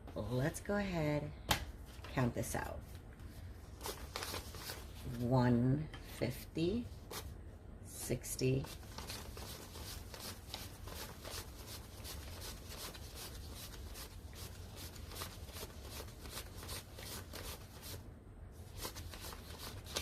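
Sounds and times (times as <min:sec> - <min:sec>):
banknotes rustling: 0:03.3 - 0:05.3, 0:08.6 - 0:18.0, 0:18.6 - 0:20.0.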